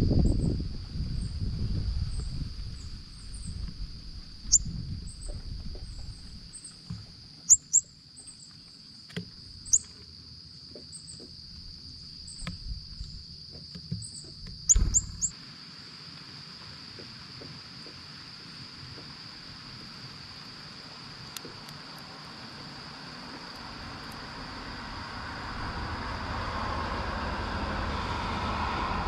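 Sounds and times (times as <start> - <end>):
insect drone: 0.0 - 29.0
bird chip calls: 4.5 - 6.8, 7.5 - 8.5, 9.6 - 9.9, 14.0 - 15.3
low thud: 14.7 - 15.2.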